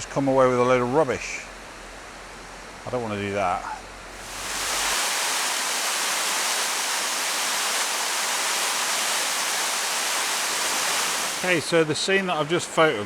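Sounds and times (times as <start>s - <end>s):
water cascading over rocks: 4.2s - 11.8s.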